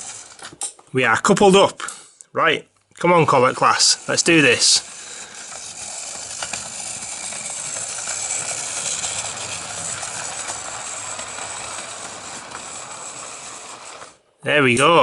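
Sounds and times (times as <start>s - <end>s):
model train motor whirring: 0.0s - 0.8s, 3.2s - 14.3s.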